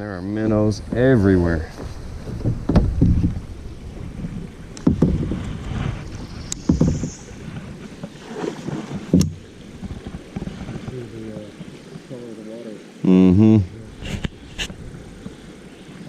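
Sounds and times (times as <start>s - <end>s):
water: 0.0s - 16.0s
wind: 0.0s - 16.0s
paddle strokes knocking: 0.8s - 12.0s.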